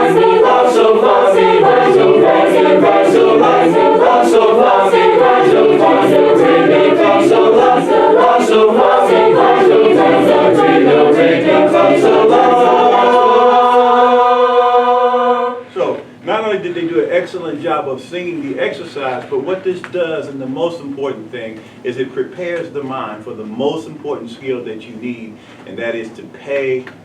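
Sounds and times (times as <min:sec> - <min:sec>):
choir singing a cappella: 0:00.0 - 0:15.7.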